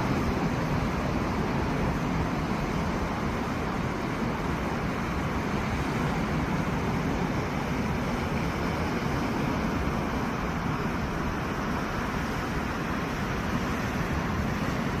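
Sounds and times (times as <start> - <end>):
waves breaking on shore: 0.0 - 15.0.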